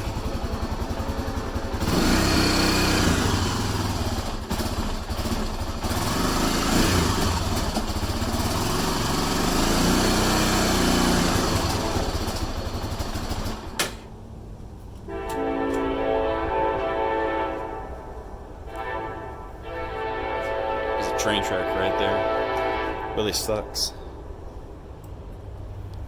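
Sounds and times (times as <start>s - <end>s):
multi-tone train horn: 0.0s - 5.1s, 9.2s - 12.9s, 15.0s - 24.3s
engine cutting out with click: 0.0s - 14.1s
atv engine revving: 0.0s - 14.2s.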